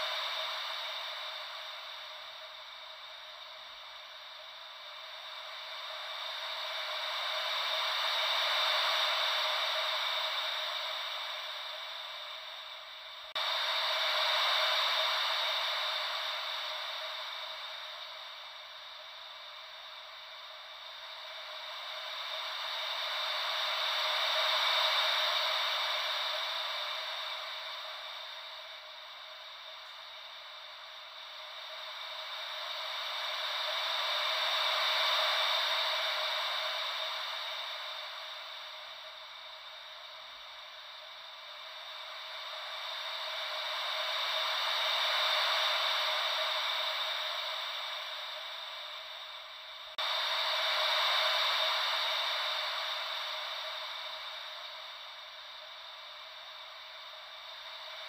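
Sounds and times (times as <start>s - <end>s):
ocean wave white noise: 0.0s - 58.0s.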